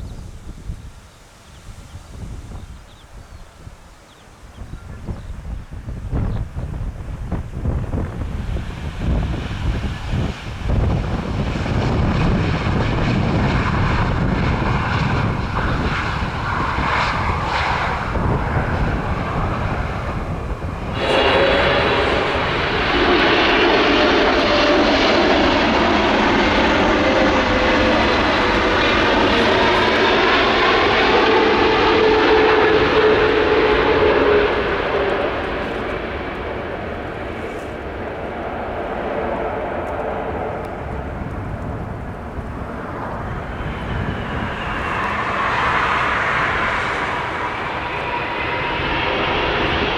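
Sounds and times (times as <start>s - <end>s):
wind buffeting microphone: 0.0s - 49.9s
jet airliner engines roaring: 4.7s - 49.9s.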